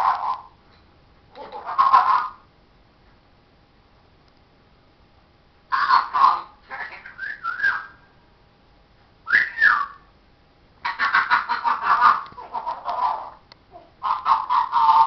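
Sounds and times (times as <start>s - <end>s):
parrot chattering: 0.0s - 0.5s, 1.4s - 2.5s, 5.7s - 8.0s, 10.8s - 15.0s
parrot whistling: 5.8s - 8.1s, 9.3s - 10.0s.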